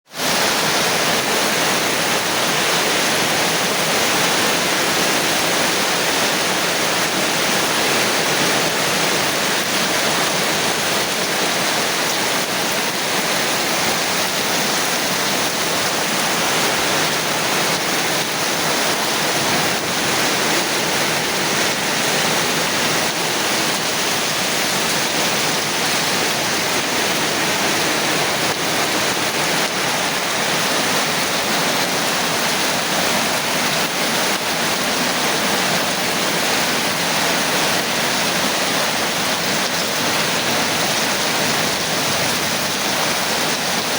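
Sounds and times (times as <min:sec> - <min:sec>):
rain falling: 0:00.1 - 0:43.9.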